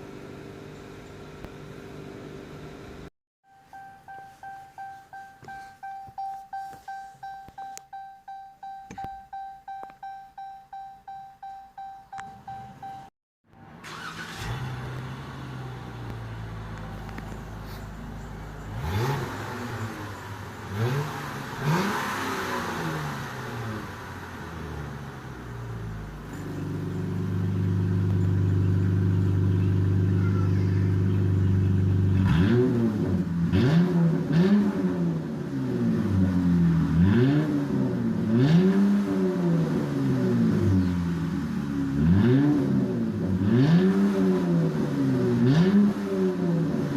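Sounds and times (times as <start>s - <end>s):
car exhaust revving: 13.8s - 30.2s, 30.9s - 46.9s.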